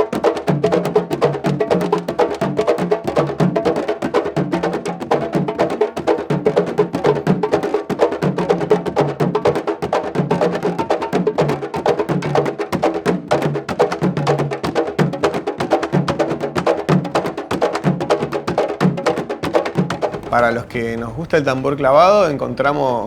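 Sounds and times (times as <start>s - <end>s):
drums playing fast rhythm: 0.0s - 23.0s
low drum pattern: 20.0s - 23.0s.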